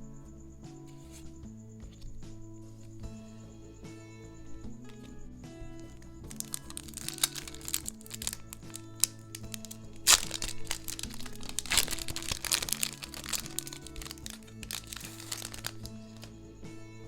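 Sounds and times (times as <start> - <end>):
background music: 0.0 - 17.0
foil wrappers crinkling: 5.8 - 16.3.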